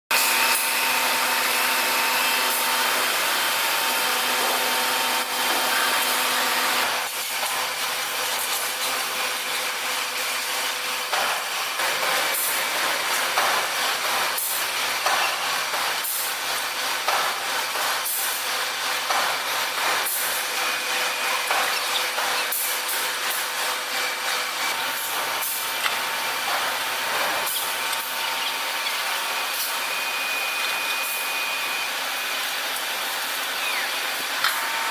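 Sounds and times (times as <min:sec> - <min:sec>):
irregular crackle and clatter: 0:07.0 - 0:09.6.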